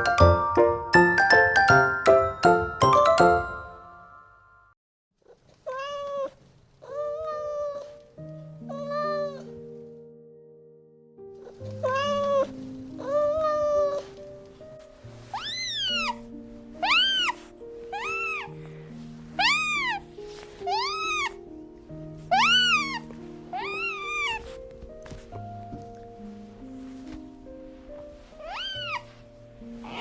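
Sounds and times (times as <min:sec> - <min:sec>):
soft background music: 0:00.0 - 0:04.8, 0:06.8 - 0:30.0
cat meowing: 0:05.3 - 0:08.0, 0:08.6 - 0:09.6, 0:11.5 - 0:14.1, 0:15.3 - 0:16.2, 0:16.8 - 0:18.6, 0:19.4 - 0:21.4, 0:22.2 - 0:24.6, 0:28.4 - 0:29.2.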